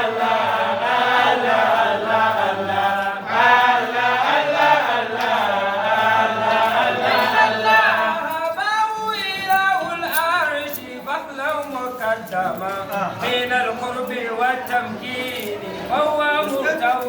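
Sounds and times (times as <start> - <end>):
group of voices chanting: 0.0 - 8.4
low hum of voices: 0.0 - 17.0.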